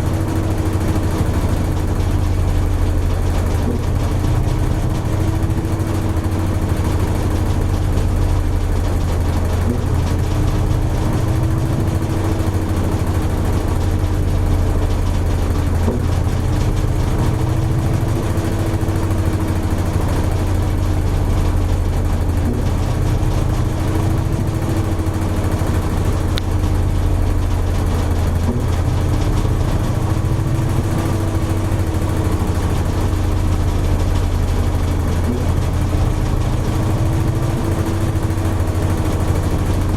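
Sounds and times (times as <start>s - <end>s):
washing machine humming and whining: 0.0s - 39.9s.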